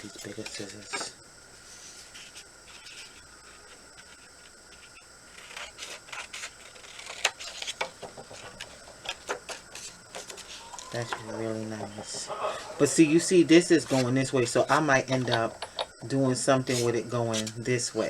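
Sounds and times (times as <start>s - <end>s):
paper rustling: 0.0s - 15.8s, 16.6s - 18.0s
scissors snipping paper: 5.3s - 10.9s.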